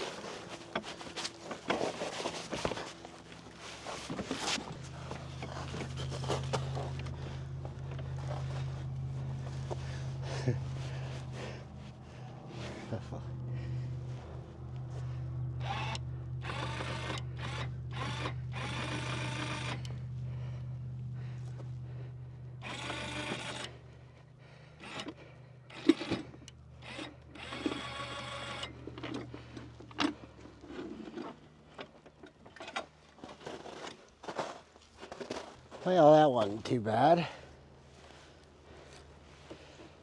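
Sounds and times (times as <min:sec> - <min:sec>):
electric motor humming: 0:02.6 - 0:24.0, 0:24.7 - 0:29.6.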